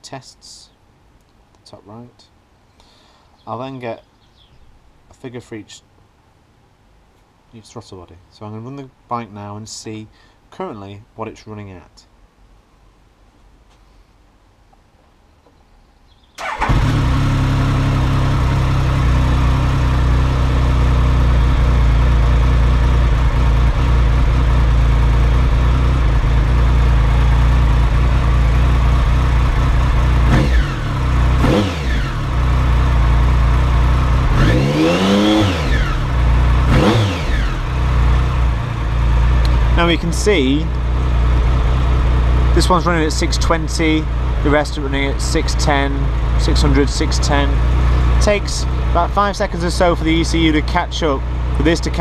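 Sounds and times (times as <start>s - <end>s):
motorcycle engine starting and idling: 16.4s - 52.0s.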